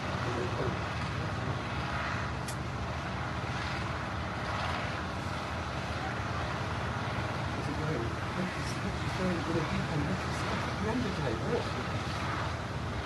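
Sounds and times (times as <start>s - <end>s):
vehicle engine rumble: 0.0s - 13.0s
sharp click: 2.4s - 2.6s.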